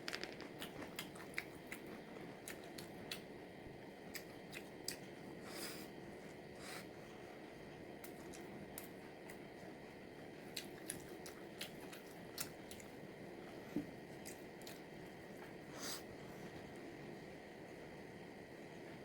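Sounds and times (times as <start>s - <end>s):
chewing and biting: 0.2s - 3.3s, 10.4s - 13.0s.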